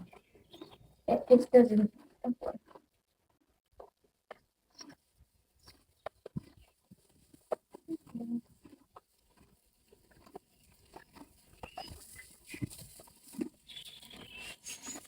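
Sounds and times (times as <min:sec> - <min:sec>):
short high chirps: 0:13.7 - 0:15.0.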